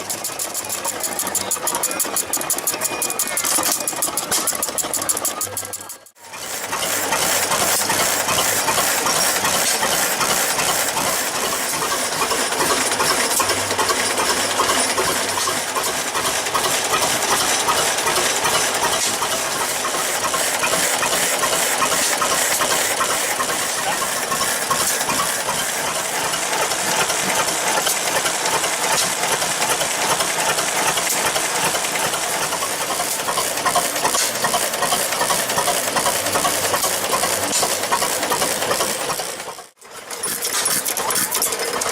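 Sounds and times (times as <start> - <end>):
old engine clattering: 0.0 - 41.9
hiss: 18.6 - 36.2.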